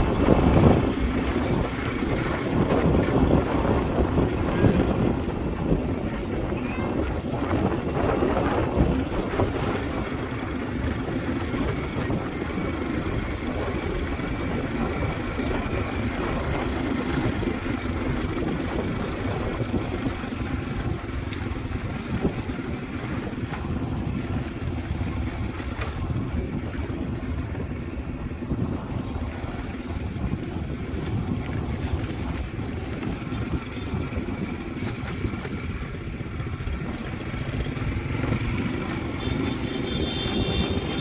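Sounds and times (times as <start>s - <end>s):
motorbike engine running: 0.0s - 41.0s
wind noise on microphone: 0.0s - 41.0s.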